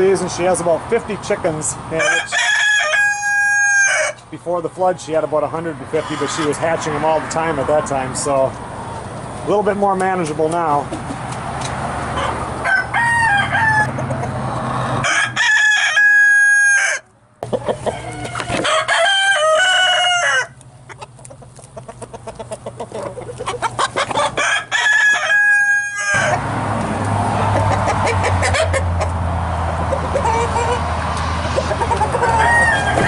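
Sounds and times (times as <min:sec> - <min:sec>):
roosters crowing: 0:01.9 - 0:04.3, 0:11.8 - 0:21.4, 0:22.0 - 0:33.0
hens clucking: 0:03.1 - 0:12.6, 0:13.2 - 0:15.0, 0:17.4 - 0:33.0.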